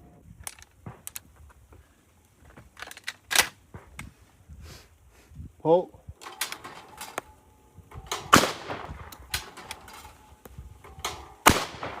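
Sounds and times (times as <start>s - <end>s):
shotgun firing: 8.1s - 9.6s, 11.4s - 12.0s.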